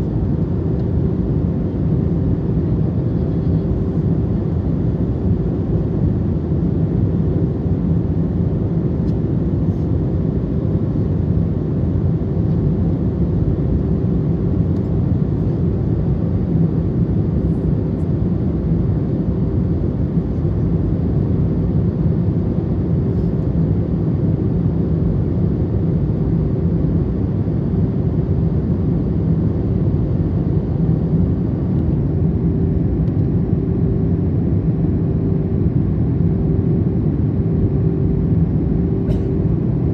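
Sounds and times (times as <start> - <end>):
airplane cabin engine roar: 0.0 - 39.9.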